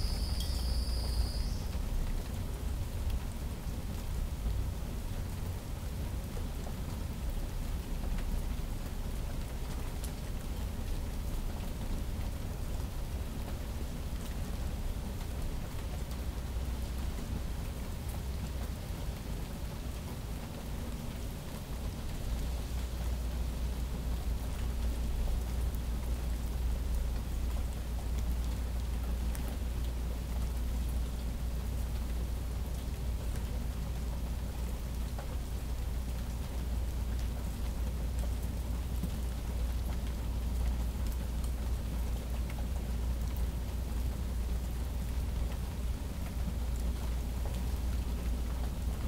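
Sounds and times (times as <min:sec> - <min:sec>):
steady rain falling: 0:00.0 - 0:49.0
raindrops ticking: 0:23.0 - 0:49.0.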